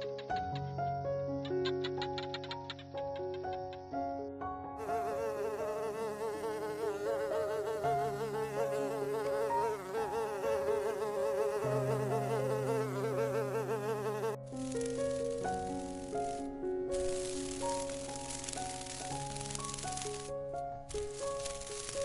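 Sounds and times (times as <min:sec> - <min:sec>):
music with sustained notes: 0:00.0 - 0:22.0
flying insect buzzing: 0:04.8 - 0:22.0.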